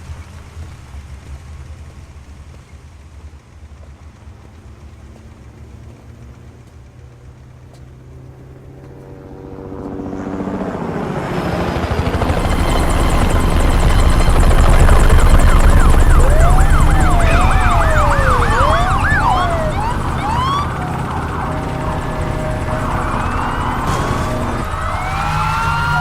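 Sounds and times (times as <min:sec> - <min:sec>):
police sirens wailing: 0:10.4 - 0:26.0.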